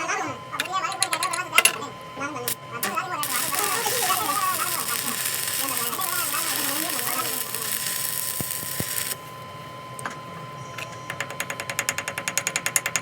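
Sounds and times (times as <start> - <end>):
loud machinery hiss: 2.8 - 9.3.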